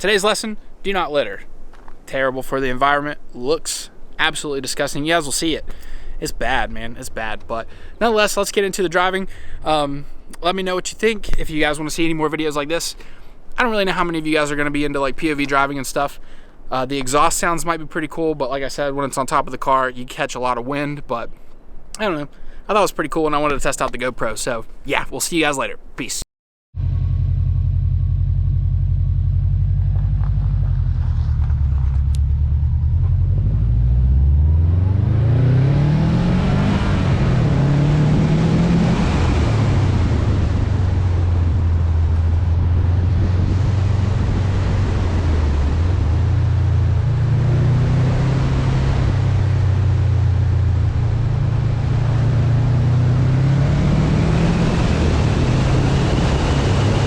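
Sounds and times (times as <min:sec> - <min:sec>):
car engine revving: 0:26.8 - 0:57.0
wind noise on microphone: 0:36.0 - 0:57.0.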